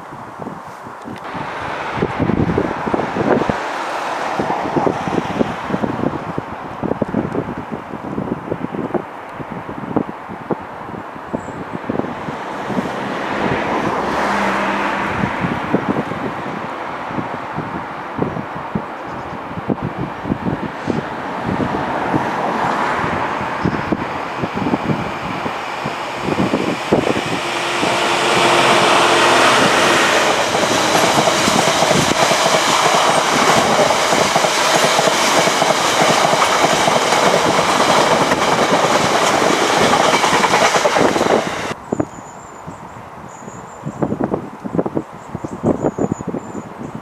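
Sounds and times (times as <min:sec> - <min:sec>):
train wheels clattering: 0:25.7 - 0:41.8.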